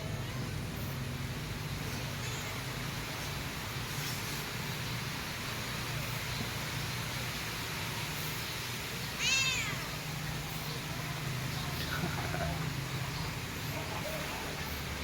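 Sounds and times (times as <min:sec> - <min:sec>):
cat meowing: 0:09.2 - 0:09.9.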